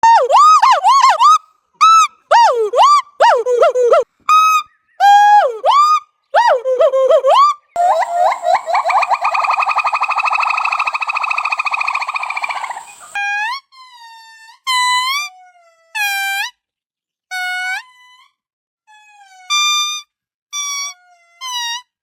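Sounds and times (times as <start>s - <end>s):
primate buzzy pulsing call: 0.0s - 4.0s, 5.0s - 13.2s
primate whistle-like calls: 0.0s - 13.2s.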